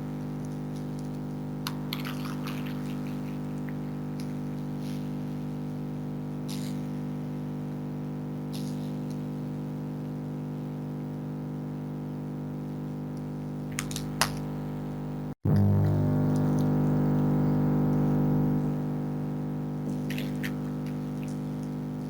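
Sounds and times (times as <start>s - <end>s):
freezer humming: 0.0s - 10.5s, 11.1s - 22.0s
foxes chewing food: 1.7s - 4.6s.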